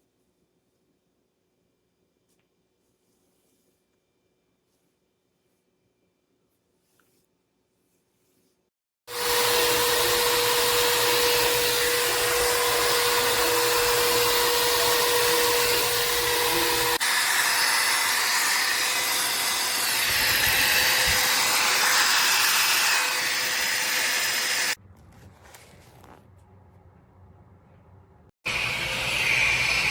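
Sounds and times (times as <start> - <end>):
hair dryer blowing: 9.1 - 24.8, 28.5 - 29.9
hair dryer whine: 9.1 - 24.8, 28.5 - 29.9.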